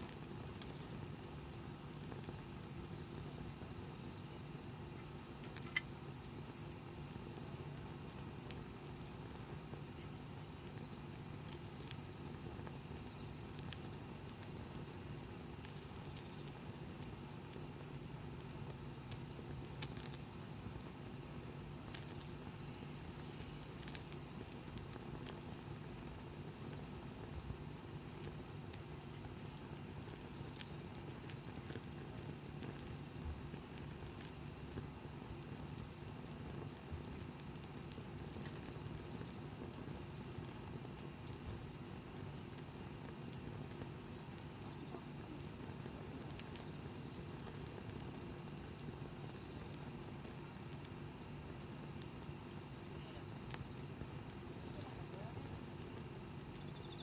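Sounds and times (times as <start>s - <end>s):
campfire crackling: 0.0s - 57.0s
high insect trill: 45.8s - 57.0s.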